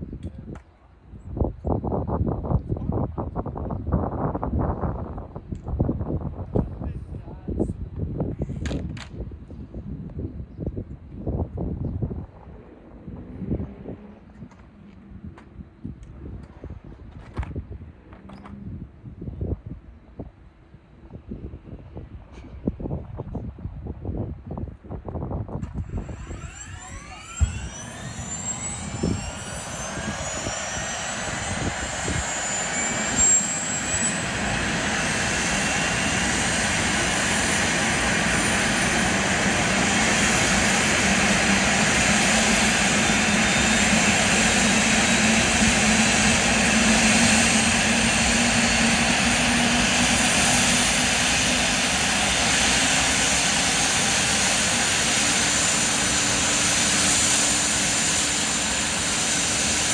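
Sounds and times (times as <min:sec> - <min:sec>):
helicopter turbine whine: 0:09.3 - 0:59.9
helicopter rotor noise: 0:25.7 - 0:59.9.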